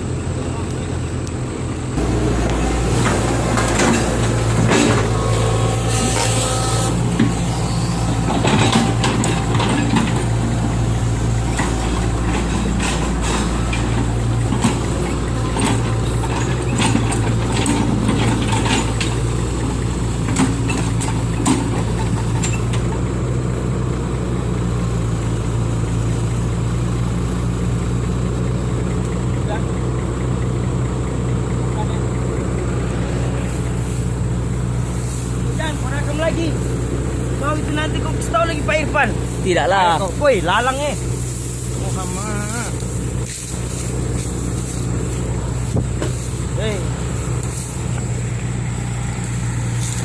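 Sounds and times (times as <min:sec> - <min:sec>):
lift truck engine running: 0:00.0 - 0:50.0
knocks and clattering: 0:02.0 - 0:23.1.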